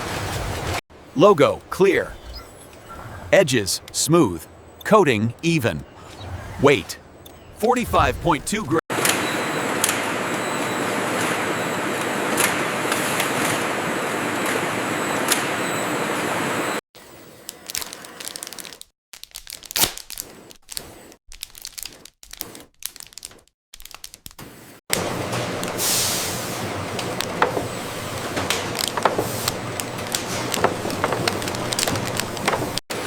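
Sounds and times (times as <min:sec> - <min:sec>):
sharp cracks and snaps: 0:17.4 - 0:24.5.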